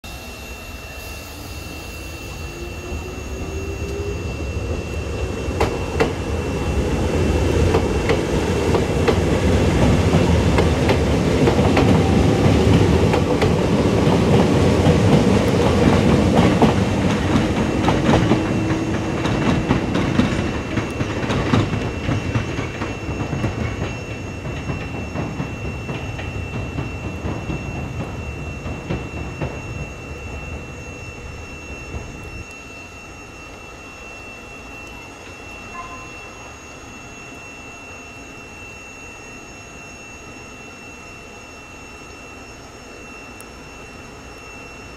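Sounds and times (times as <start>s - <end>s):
train motor hum rising: 0.1s - 33.0s
train rumble: 0.1s - 33.7s.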